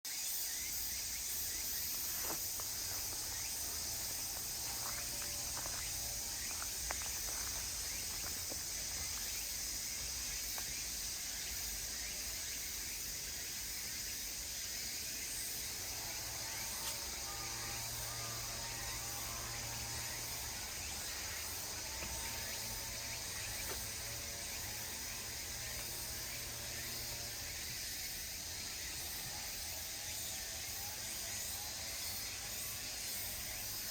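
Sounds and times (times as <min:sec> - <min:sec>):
chorus of insects: 0:00.1 - 0:33.9.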